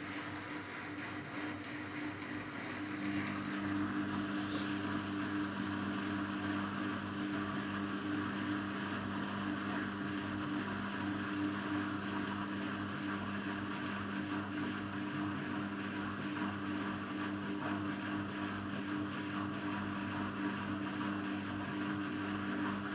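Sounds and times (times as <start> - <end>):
washing machine motor whine: 0.0 - 22.9.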